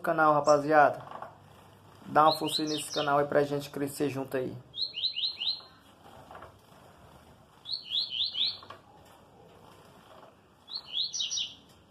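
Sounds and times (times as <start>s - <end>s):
bird singing whistled notes: 2.2s - 3.2s, 4.7s - 5.7s, 7.6s - 8.7s, 10.7s - 11.6s.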